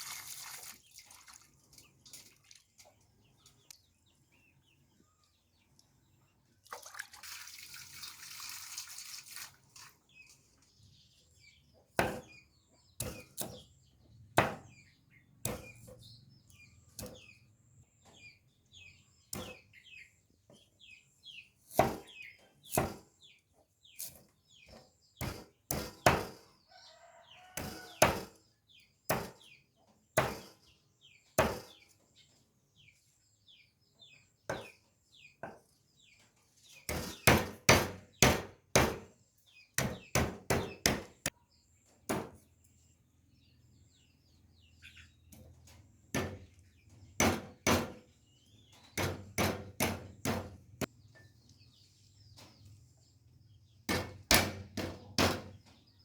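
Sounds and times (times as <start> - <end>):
small birds chirping: 0.0 - 6.9, 7.5 - 56.0
knife chopping on a board: 12.0 - 12.3, 13.0 - 13.6, 14.4 - 14.7, 15.4 - 15.9, 21.7 - 22.1, 22.7 - 23.0, 25.2 - 26.4, 27.6 - 28.3, 29.1 - 29.4, 30.2 - 30.5, 31.4 - 31.7, 36.9 - 39.1, 39.8 - 41.2, 42.1 - 42.4, 46.1 - 46.4, 47.2 - 48.0, 49.0 - 50.6, 53.9 - 55.5.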